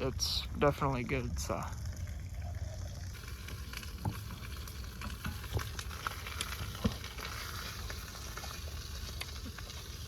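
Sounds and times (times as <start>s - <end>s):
low rumble of stove burner: 0.0s - 10.0s
pops and crackles: 1.7s - 10.0s
steak sizzling on a grill: 2.8s - 10.0s.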